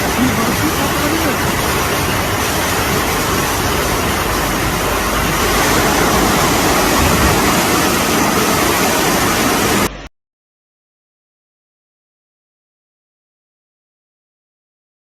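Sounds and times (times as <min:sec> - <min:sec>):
floodwater rushing: 0:00.0 - 0:10.1.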